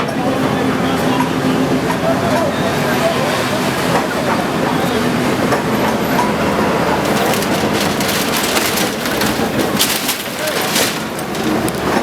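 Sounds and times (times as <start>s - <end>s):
demolition machinery running: 0.1s - 12.0s
debris crunching and cracking: 6.9s - 12.0s.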